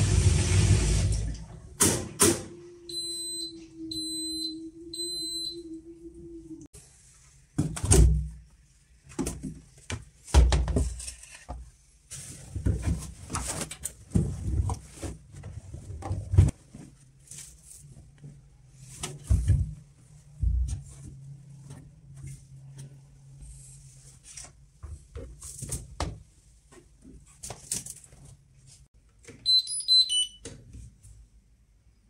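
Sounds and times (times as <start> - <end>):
washing machine hum: 0.0 - 8.4
washing machine beeps: 2.8 - 6.4, 29.4 - 30.5.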